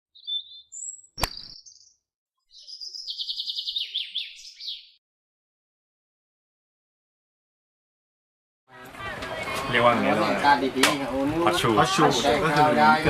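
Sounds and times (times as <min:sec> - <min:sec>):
bird trill: 0:00.1 - 0:05.0
high-pitched bird chirps: 0:00.1 - 0:05.0
sharp click: 0:01.2 - 0:01.6.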